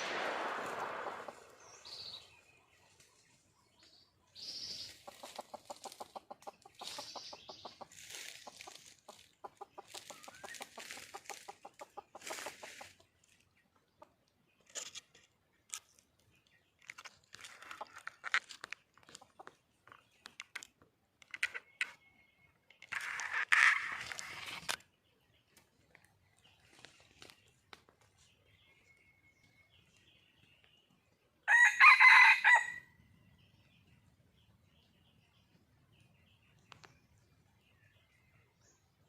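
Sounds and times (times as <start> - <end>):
hen clucking: 4.7 - 13.1.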